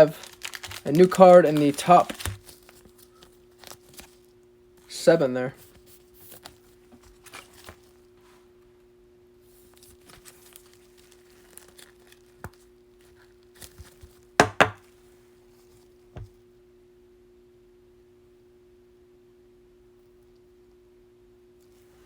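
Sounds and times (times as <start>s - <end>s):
cards clicking and rustling: 0.0s - 4.2s, 9.8s - 14.8s
knocks on a table: 14.4s - 14.8s.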